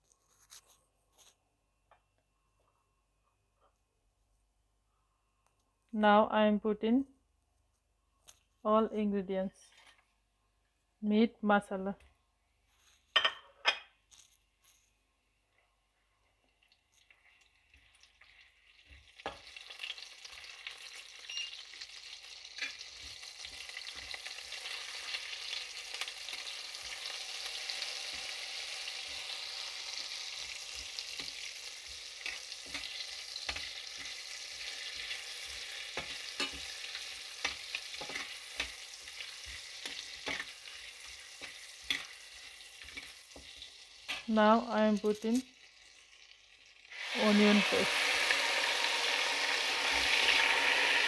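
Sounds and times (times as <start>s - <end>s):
food sizzling in oil: 16.5s - 51.0s
spoon scraping pan: 30.6s - 44.3s.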